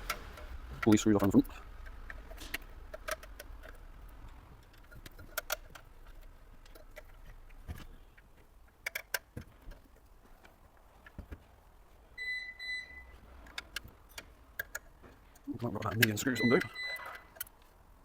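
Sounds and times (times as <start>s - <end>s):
metallic clicks and taps: 0.0s - 3.8s, 4.6s - 11.4s, 13.4s - 17.7s.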